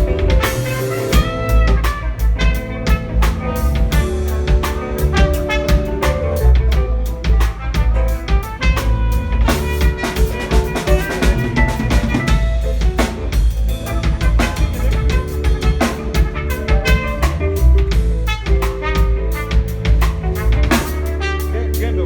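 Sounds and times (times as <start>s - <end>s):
deep bass line: 0.0s - 22.0s
drum kit beat with rimshots: 0.0s - 22.0s.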